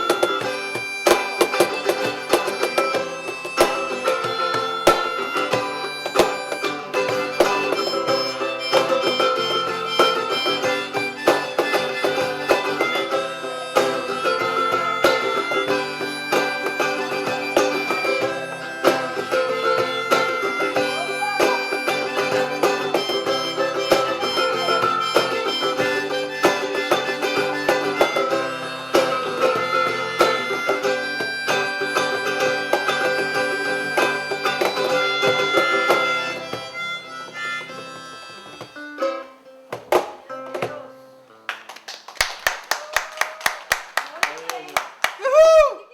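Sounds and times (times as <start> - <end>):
hand percussion: 0.0 - 38.8
held-note melodic lead: 0.0 - 39.4
acoustic guitar: 0.0 - 41.7.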